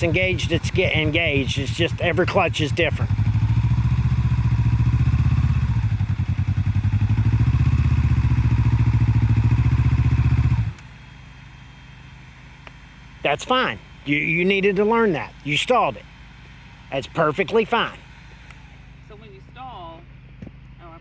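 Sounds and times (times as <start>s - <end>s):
motorcycle engine idling and stalling: 0.0s - 20.8s.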